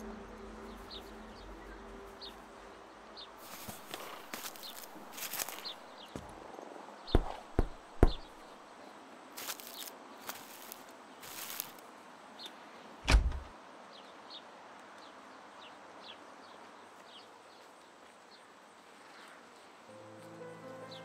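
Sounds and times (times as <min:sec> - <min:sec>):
soft music notes: 0:00.0 - 0:05.6, 0:19.9 - 0:21.0
door thudding open: 0:13.1 - 0:13.5.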